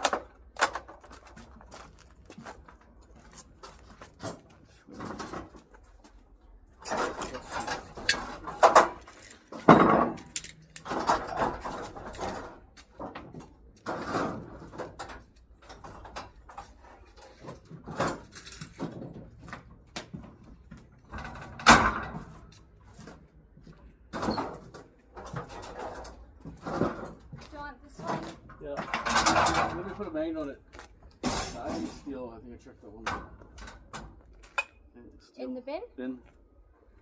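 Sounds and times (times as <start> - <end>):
scrap metal clanking and rattling: 3.2 - 6.1, 6.8 - 23.2, 24.1 - 30.4, 31.2 - 32.3.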